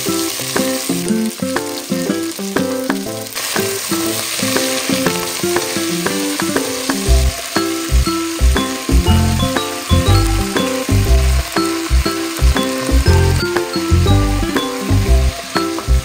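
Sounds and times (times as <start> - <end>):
vegetables sizzling in hot oil: 0.0 - 16.0
instrumental music of picked notes: 3.9 - 16.0
deep bass line: 7.1 - 16.0.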